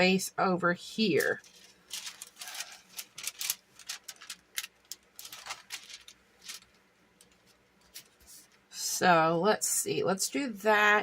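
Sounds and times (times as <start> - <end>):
paper rustling: 1.2 - 8.6.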